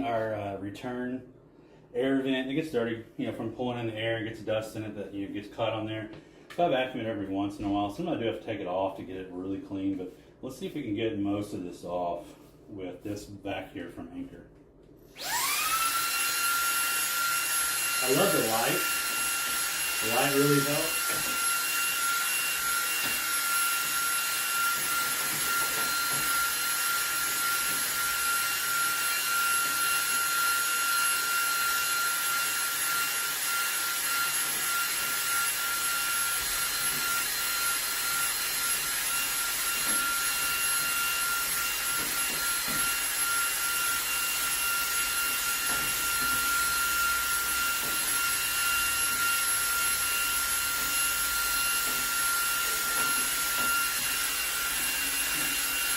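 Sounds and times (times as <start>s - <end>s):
handheld vacuum motor whine: 15.0s - 55.9s.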